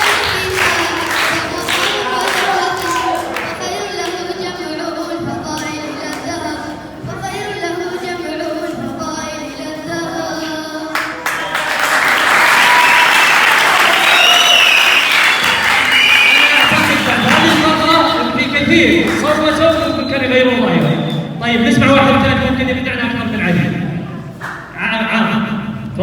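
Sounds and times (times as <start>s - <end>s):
audience applause: 0.0s - 3.6s, 11.0s - 18.2s.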